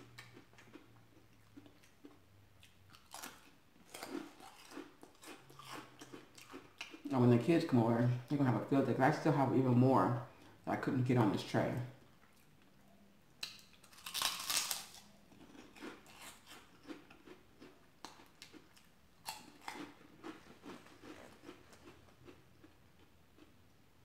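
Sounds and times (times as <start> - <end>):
biting crunchy snack: 0.0 - 7.1, 13.4 - 23.6
crunchy chewing: 0.0 - 7.1, 12.1 - 23.8.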